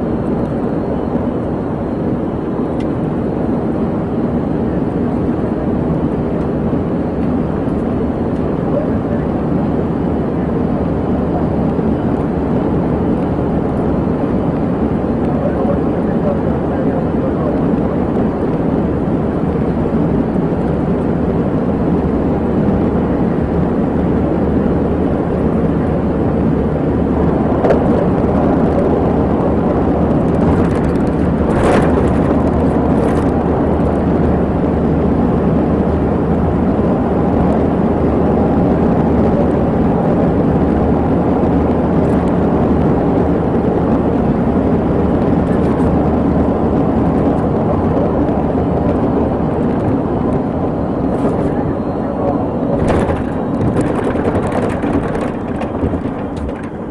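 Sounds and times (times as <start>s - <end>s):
car engine and road rumble: 0.0s - 56.9s.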